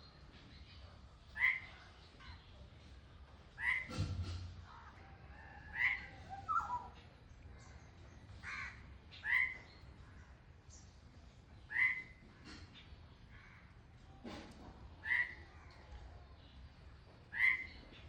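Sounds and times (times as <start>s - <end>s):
crows cawing: 8.4s - 9.6s.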